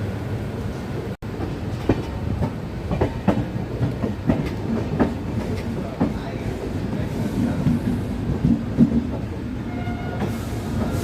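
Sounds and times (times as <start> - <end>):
train coaches rumbling: 0.0 - 11.0
wheels clacking over rail joints: 1.3 - 6.5.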